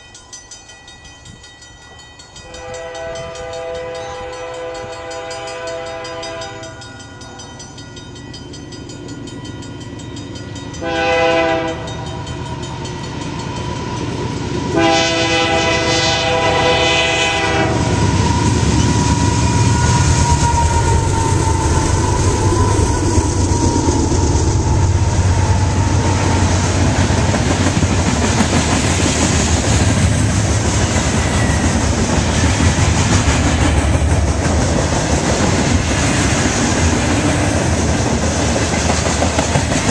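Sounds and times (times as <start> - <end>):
freight train rumbling past: 0.0 - 39.9
locomotive horn blasts: 2.4 - 7.0, 10.8 - 12.2, 14.7 - 22.0.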